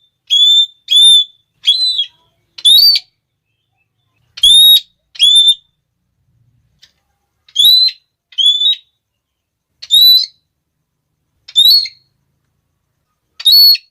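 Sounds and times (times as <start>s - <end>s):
parrot calling shrill notes: 0.0s - 3.2s, 4.3s - 5.7s, 7.5s - 9.0s, 9.8s - 10.4s, 11.5s - 12.1s, 13.4s - 13.9s.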